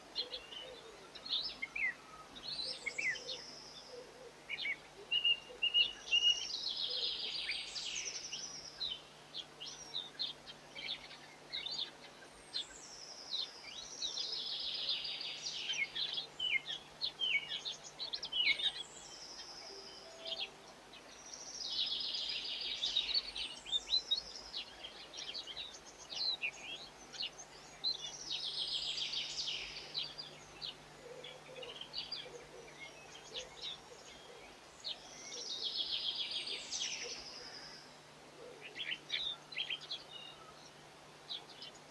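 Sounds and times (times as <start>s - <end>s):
songbird singing: 0.0s - 41.9s.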